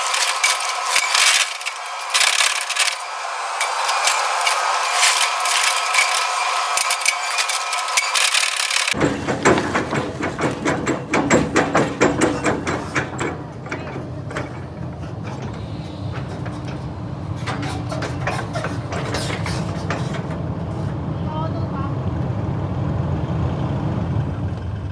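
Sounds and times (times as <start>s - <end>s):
metallic clicks and clanks: 0.0s - 21.0s
engine rumble: 8.8s - 24.9s.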